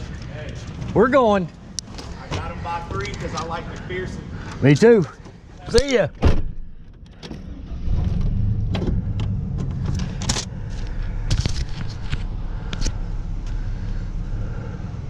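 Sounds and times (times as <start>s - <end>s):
vehicle engine driving off: 7.4s - 15.0s.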